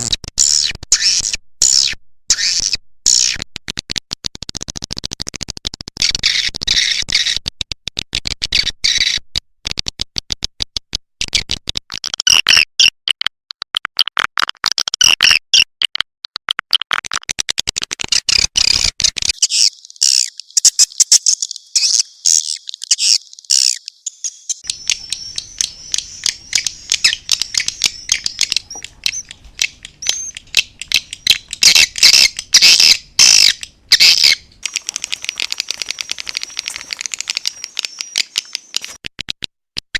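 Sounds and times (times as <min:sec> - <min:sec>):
swiftlet chattering twitters: 0:19.4 - 0:39.0.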